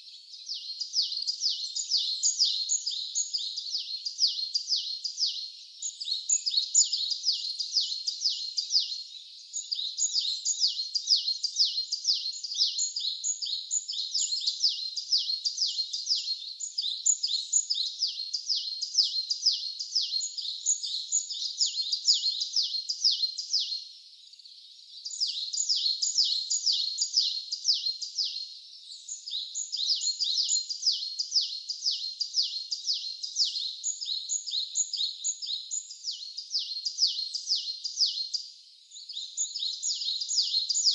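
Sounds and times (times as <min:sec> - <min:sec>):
birds chirping: 0:24.2 - 0:40.9.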